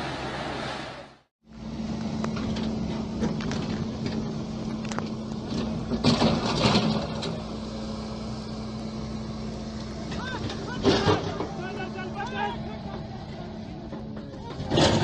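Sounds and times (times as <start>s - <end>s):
engine running: 0.0s - 15.0s
knocks and clanks: 2.3s - 7.5s, 10.0s - 15.0s.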